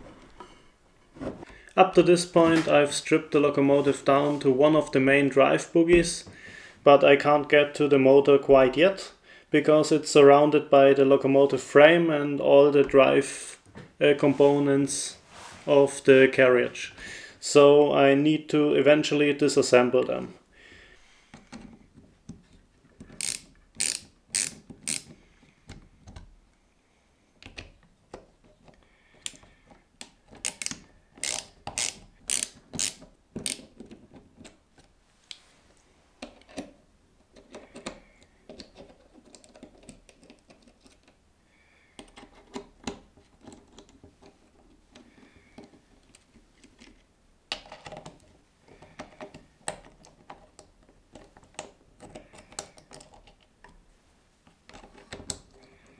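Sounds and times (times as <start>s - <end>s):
plastic and metal parts clicking: 21.3s - 26.3s, 27.4s - 34.9s, 36.2s - 41.2s, 42.0s - 53.8s, 54.4s - 55.9s.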